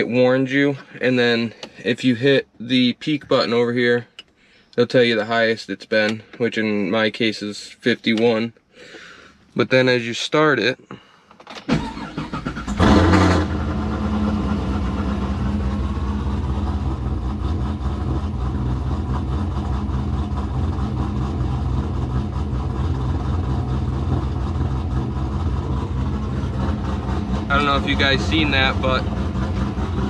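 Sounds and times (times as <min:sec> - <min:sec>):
engine starter cranking: 0:11.3 - 0:13.8
car engine revving and idling: 0:12.0 - 0:30.0.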